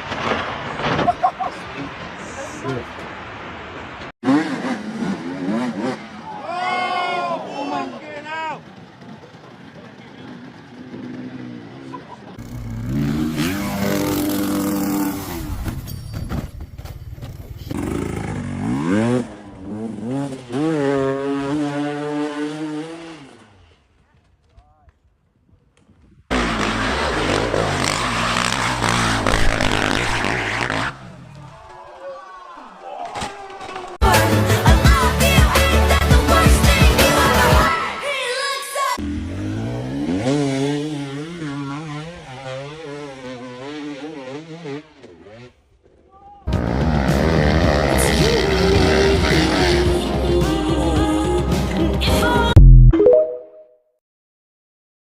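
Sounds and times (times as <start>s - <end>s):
motorcycle engine revving: 4.2s - 6.3s, 8.6s - 15.7s, 17.7s - 23.6s, 26.3s - 31.3s, 39.0s - 45.7s, 46.5s - 51.2s.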